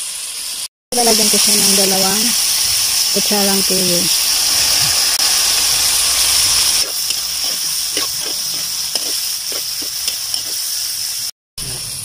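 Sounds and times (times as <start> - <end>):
food sizzling in a wok: 0.0 - 12.0
metal spoon scraping a pan: 6.8 - 10.7.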